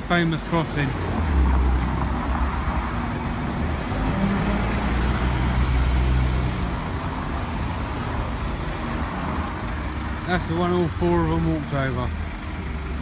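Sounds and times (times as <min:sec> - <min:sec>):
car engines running slowly: 0:00.0 - 0:13.0
tyre and street noise: 0:00.0 - 0:13.0.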